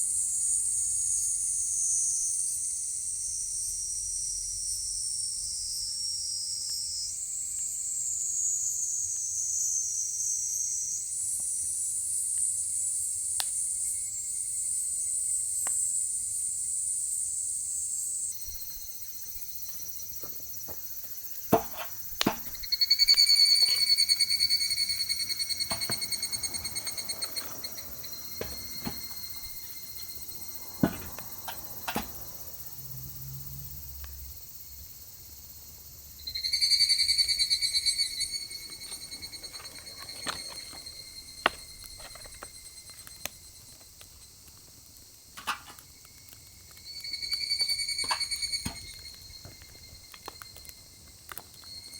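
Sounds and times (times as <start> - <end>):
night insects chirping: 0.0 - 51.9
firewood crackling: 18.4 - 32.9, 37.7 - 51.9.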